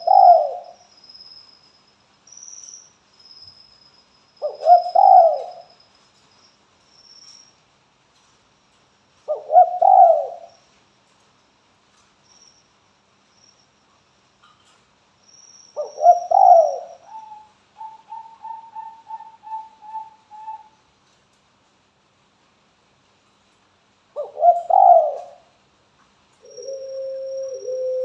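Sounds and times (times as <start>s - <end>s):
dove cooing: 0.0s - 0.8s, 4.4s - 5.7s, 9.3s - 10.5s, 15.8s - 20.8s, 24.2s - 25.5s, 26.4s - 28.0s.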